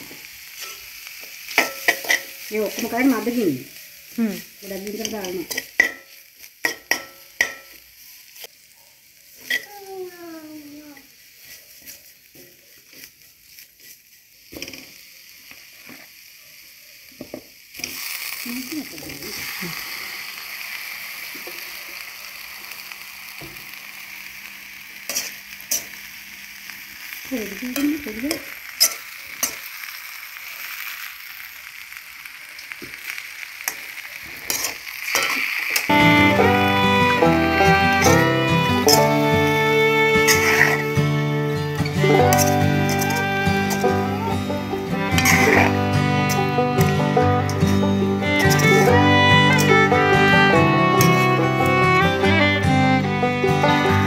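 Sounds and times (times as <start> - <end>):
frying sizzle: 0.0 - 54.0
metal spoon scraping a metal pan: 0.6 - 0.9, 1.5 - 3.1, 4.9 - 7.8, 25.1 - 26.0, 28.3 - 29.6, 34.4 - 35.9, 38.9 - 39.3, 40.1 - 40.9, 42.2 - 44.0, 44.9 - 50.0, 51.0 - 51.8.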